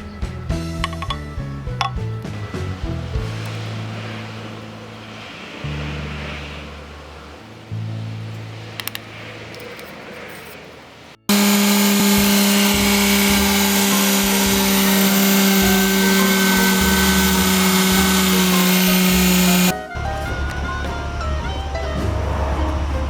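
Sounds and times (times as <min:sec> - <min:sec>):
power tool motor running: 0:11.3 - 0:19.7.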